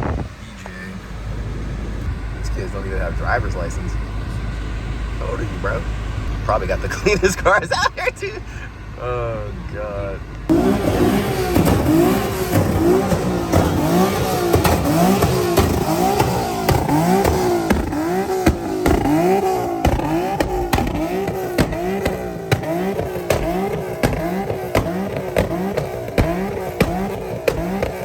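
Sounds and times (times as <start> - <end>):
car engine revving: 0.0 - 28.0
exhaust pops: 10.3 - 28.0.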